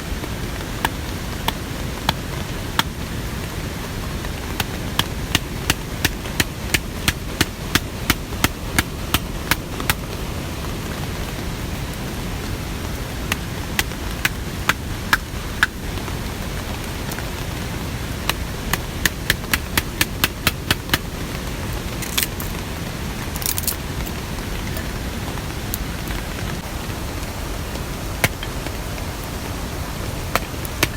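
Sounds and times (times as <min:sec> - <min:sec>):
steady rain: 0:00.0 - 0:30.9
sharp evenly spaced taps: 0:00.8 - 0:03.0, 0:04.2 - 0:10.3, 0:13.3 - 0:16.0, 0:18.2 - 0:21.2, 0:28.2 - 0:28.8, 0:30.3 - 0:30.9.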